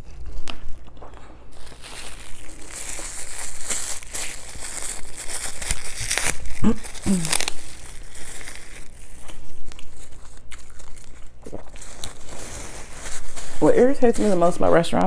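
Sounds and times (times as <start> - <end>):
paper wrapper crinkling: 1.5 - 15.0
person humming: 6.6 - 7.7.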